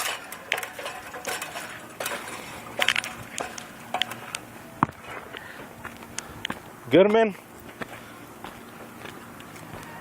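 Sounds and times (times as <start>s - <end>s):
small metal items clinking: 0.0s - 4.3s.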